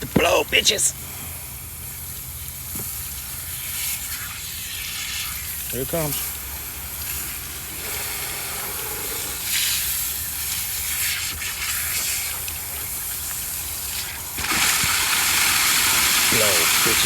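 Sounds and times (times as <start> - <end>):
pressurised water spraying: 0.0 - 17.0.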